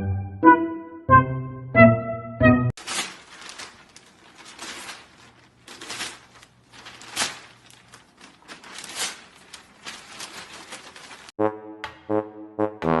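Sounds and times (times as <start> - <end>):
rustling and scraping: 2.8 - 11.3.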